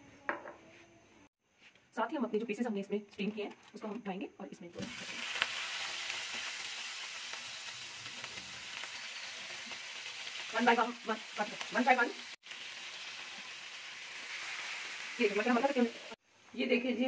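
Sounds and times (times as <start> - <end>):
chicken sizzling in hot oil: 4.8 - 16.2.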